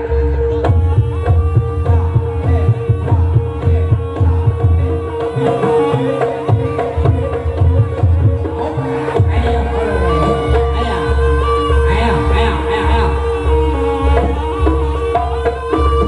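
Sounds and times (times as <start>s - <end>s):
fast hand drumming: 0.6s - 11.0s.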